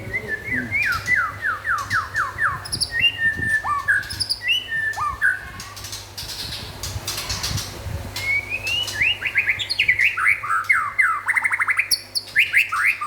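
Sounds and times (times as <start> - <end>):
bird singing whistled phrases: 0.0 - 5.6, 8.2 - 13.0.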